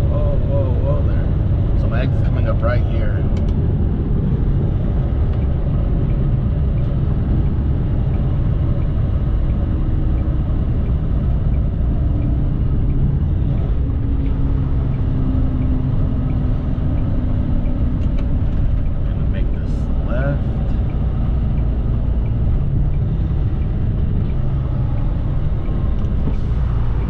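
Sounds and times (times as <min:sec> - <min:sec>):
road noise: 0:00.0 - 0:27.0
truck diesel engine rumble: 0:00.0 - 0:27.0.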